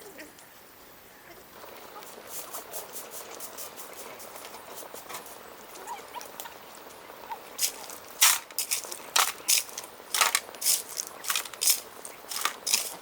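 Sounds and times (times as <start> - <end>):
irregular crunching strokes: 7.6 - 13.0.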